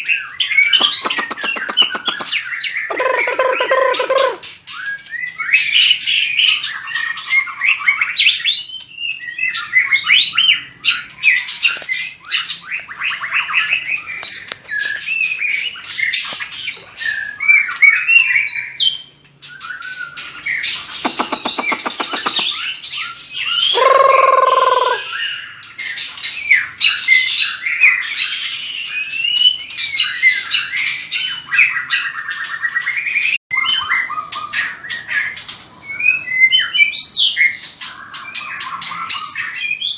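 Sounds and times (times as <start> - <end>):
bird singing whistles and trills: 0.0 - 35.2
buzzy rattle call: 0.8 - 2.4, 21.1 - 22.6
harsh low bird call: 21.1 - 22.6.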